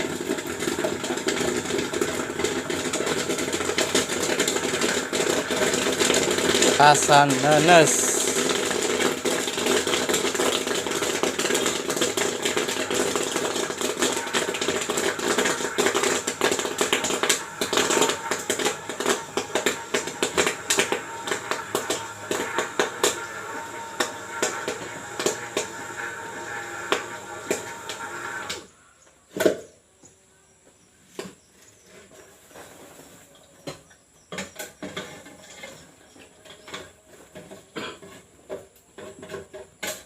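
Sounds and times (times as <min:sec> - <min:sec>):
corn kernels popping: 0:00.0 - 0:28.7
popcorn machine humming: 0:00.0 - 0:28.7.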